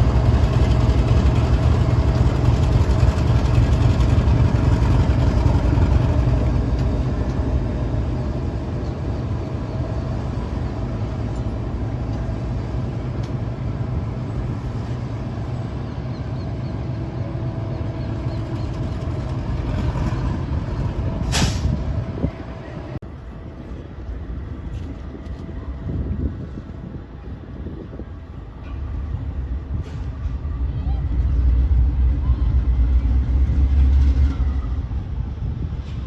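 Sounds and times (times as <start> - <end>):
locomotive engine drone: 0.0 - 36.0
air brake hiss: 21.3 - 21.8.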